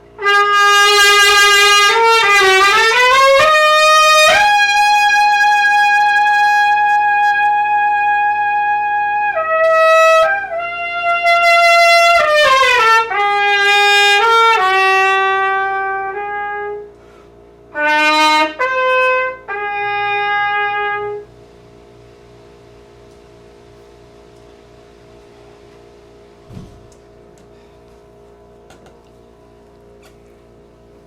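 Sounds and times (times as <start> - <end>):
solo trumpet playing: 0.1 - 21.4.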